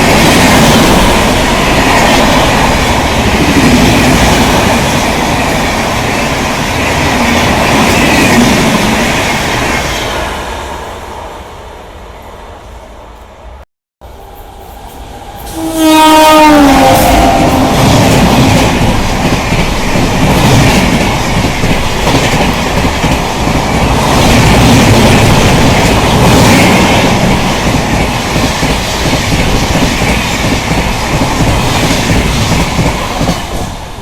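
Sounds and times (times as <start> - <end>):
train horn blowing: 15.4 - 18.7
train wheels clattering on rails: 17.4 - 34.0.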